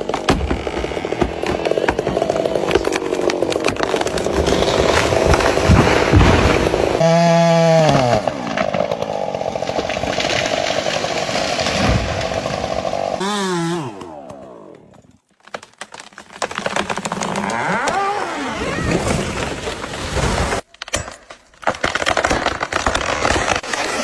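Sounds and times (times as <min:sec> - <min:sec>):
chainsaw running: 0:00.0 - 0:15.0, 0:17.2 - 0:19.4, 0:23.4 - 0:24.0.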